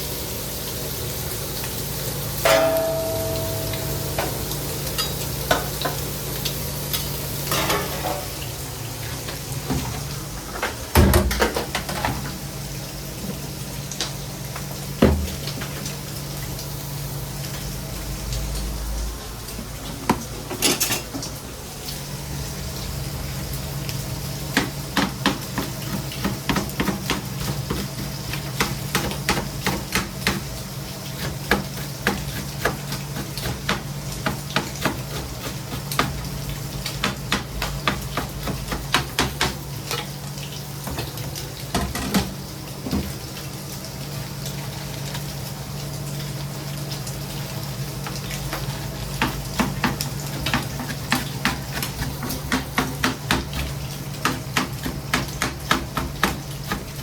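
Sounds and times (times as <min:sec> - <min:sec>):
food sizzling: 0:00.0 - 0:10.9, 0:11.8 - 0:57.0
metal utensils clicking on pans: 0:02.5 - 0:06.0, 0:06.9 - 0:08.4, 0:20.4 - 0:21.2.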